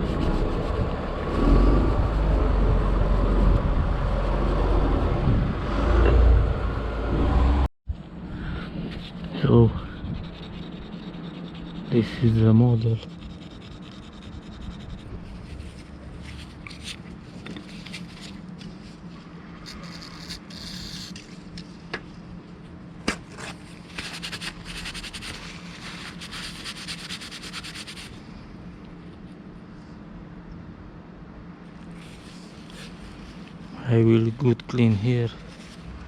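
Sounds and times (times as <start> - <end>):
rapid scratching: 19.6 - 21.2.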